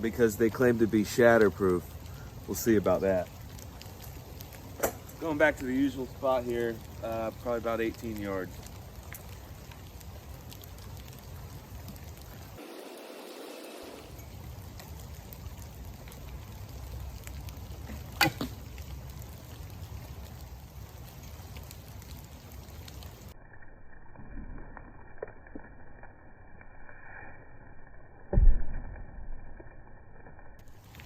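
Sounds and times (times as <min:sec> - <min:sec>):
rain hissing: 0:00.0 - 0:23.8, 0:30.1 - 0:31.0.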